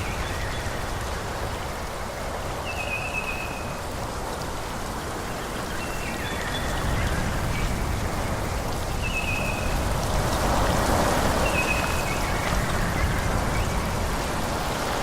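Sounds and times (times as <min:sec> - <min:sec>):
wind rushing through trees: 0:00.0 - 0:15.0.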